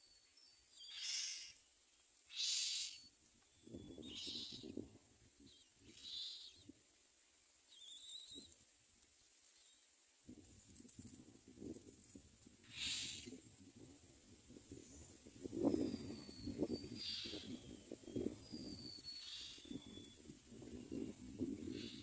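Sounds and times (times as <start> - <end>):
nestlings raspy begging calls: 0.8 - 1.6, 2.3 - 3.1, 3.9 - 4.8, 5.8 - 6.6, 12.7 - 13.3, 16.8 - 17.6, 19.2 - 20.0.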